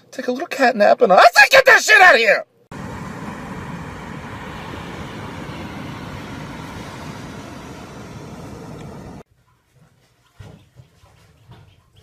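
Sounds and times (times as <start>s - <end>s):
beach ambience rush: 2.7s - 9.2s.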